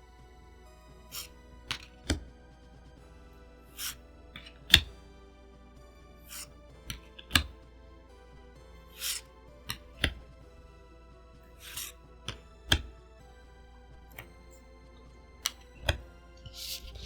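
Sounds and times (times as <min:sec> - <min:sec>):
soft background music: 0:00.0 - 0:17.0
cards sliding swishes: 0:01.0 - 0:02.4, 0:03.7 - 0:05.0, 0:06.2 - 0:07.6, 0:08.6 - 0:10.4, 0:11.4 - 0:13.0, 0:14.0 - 0:14.7, 0:15.4 - 0:17.0
trading cards tapping: 0:01.1 - 0:02.9, 0:03.7 - 0:05.0, 0:06.2 - 0:07.7, 0:08.8 - 0:10.4, 0:11.4 - 0:13.0, 0:13.9 - 0:17.0.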